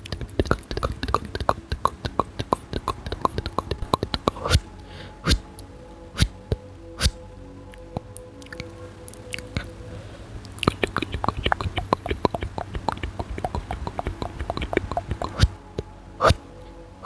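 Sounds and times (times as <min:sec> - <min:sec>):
wet tongue clicks: 0:00.0 - 0:04.6, 0:08.4 - 0:08.7, 0:10.5 - 0:15.5
lip smacks: 0:10.5 - 0:15.5.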